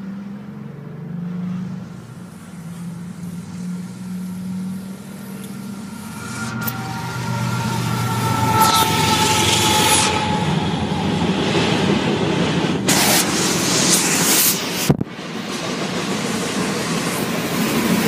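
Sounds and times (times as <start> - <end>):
train wheels rumbling on track: 0.0 - 18.0
short bursts of hiss: 12.9 - 14.9.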